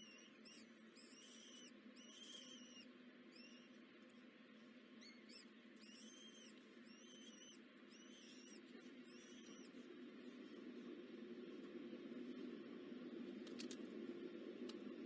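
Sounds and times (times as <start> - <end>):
small bird chirping: 0.0 - 3.8, 5.0 - 9.8
steady low hum: 0.0 - 15.0.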